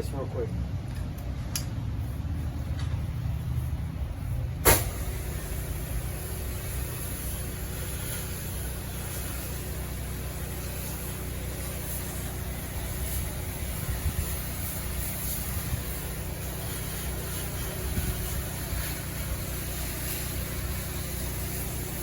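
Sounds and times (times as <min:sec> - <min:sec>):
sharp click: 0:01.0 - 0:01.8
pressure washer engine running: 0:02.0 - 0:22.0
hiss of spray: 0:03.3 - 0:22.0.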